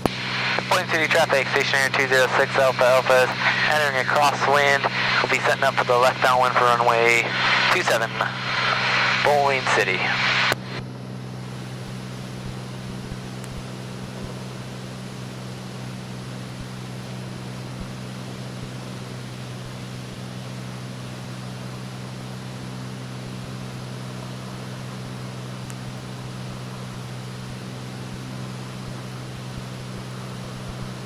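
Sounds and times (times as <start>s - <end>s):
air noise: 0.0s - 13.0s
aircraft engine and propeller drone: 0.0s - 31.0s.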